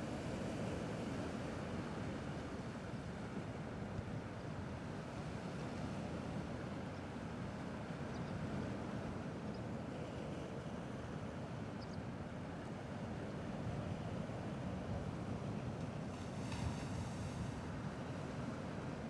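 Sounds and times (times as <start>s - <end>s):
gentle sea waves: 0.0s - 19.0s.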